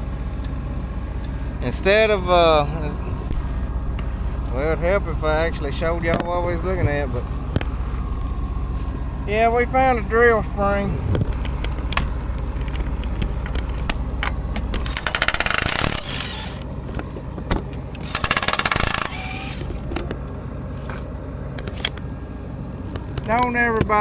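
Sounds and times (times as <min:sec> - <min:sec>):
low machine hum: 0:00.0 - 0:24.0
rapid metallic clicking: 0:12.7 - 0:16.8, 0:17.7 - 0:20.0.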